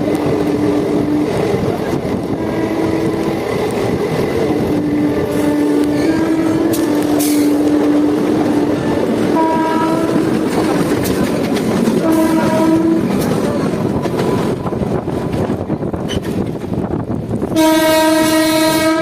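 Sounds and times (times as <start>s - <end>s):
train rumble and wheel clatter: 0.0s - 19.0s
train horn blasts: 4.8s - 10.6s, 12.0s - 13.4s, 17.5s - 19.0s.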